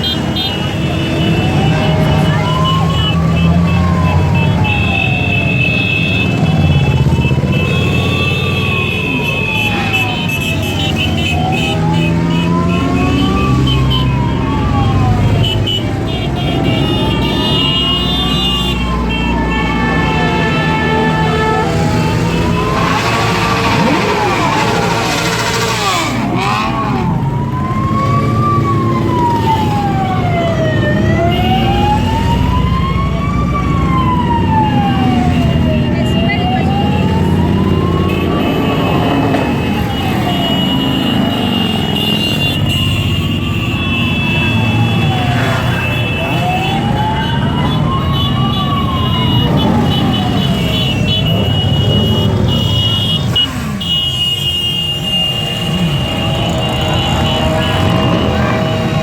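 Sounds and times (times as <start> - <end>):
siren wailing: 0.2 - 53.8, 54.8 - 59.0
loud rush of noise: 21.0 - 27.2
motorcycle engines running: 21.6 - 42.7, 44.0 - 59.0.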